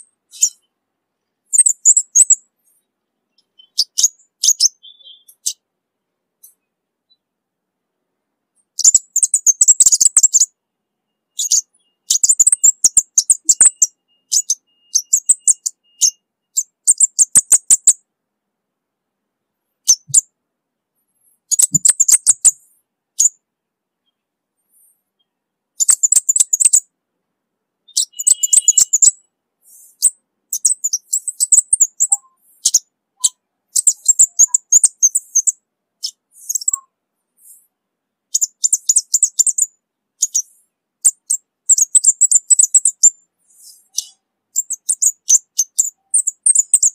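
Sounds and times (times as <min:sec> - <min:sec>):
bird singing high-pitched chips: 0:00.0 - 0:00.7, 0:01.5 - 0:05.6, 0:08.6 - 0:18.0, 0:19.8 - 0:20.3, 0:21.2 - 0:23.4, 0:24.8 - 0:26.8, 0:27.9 - 0:37.7, 0:38.3 - 0:46.9.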